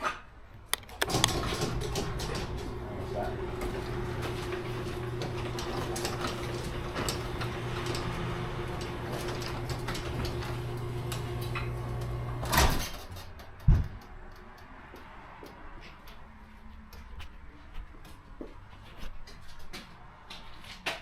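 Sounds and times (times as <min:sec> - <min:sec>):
garage door clatter: 0:00.8 - 0:14.0
garage door opener motor humming: 0:00.9 - 0:13.2.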